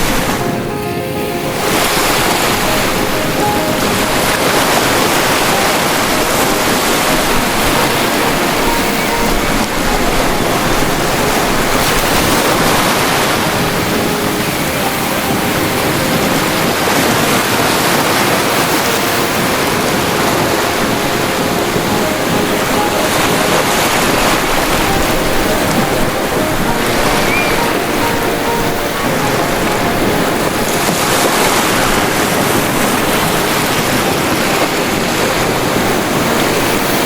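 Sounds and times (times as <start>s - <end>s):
ocean waves breaking on shore: 0.0s - 37.0s.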